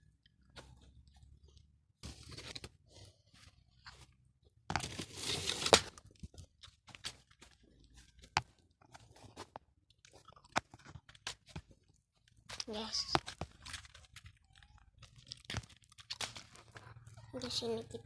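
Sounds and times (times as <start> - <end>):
crunching rustling handling noise: 0.3 - 17.6.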